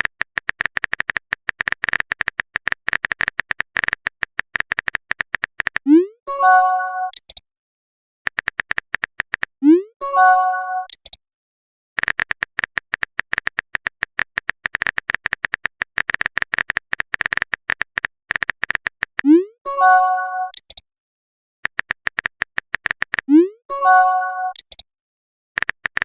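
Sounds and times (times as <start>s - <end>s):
phone keyboard typing clicks: 0.0s - 5.9s, 8.3s - 9.6s, 10.8s - 11.2s, 12.0s - 19.4s, 21.6s - 23.3s, 23.9s - 24.9s, 25.6s - 26.0s.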